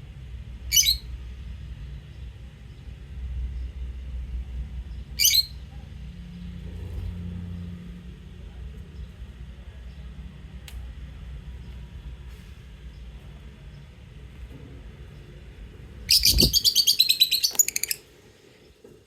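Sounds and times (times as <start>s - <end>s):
low background rumble: 0.0s - 19.0s
bird shrill chirp: 0.7s - 1.1s, 16.1s - 18.0s.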